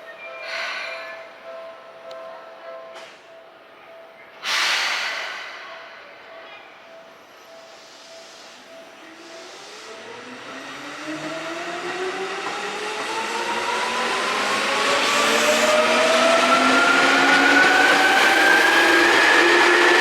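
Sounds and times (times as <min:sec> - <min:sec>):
electric train motors whining: 0:09.2 - 0:20.0.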